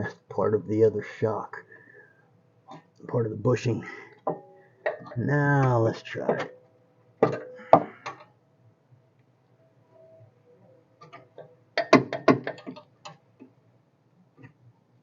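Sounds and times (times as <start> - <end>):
metal tools knocking and clicking: 7.2 - 8.2, 11.8 - 12.8.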